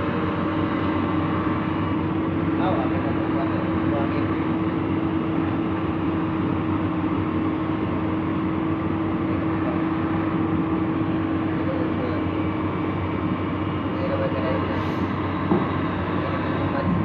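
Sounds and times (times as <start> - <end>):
heavy diesel engine droning: 0.0 - 17.0
steady hum: 9.4 - 17.0.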